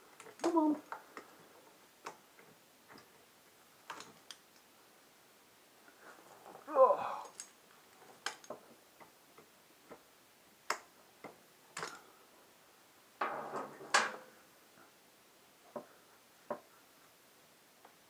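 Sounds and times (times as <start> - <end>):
rattling and scraping: 13.2 - 14.3.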